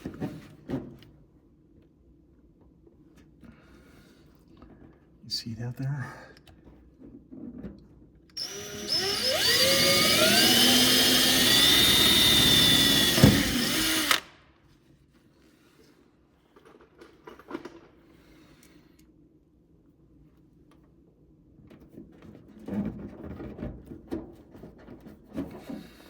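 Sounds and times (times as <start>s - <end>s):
power drill whining: 8.4s - 14.3s.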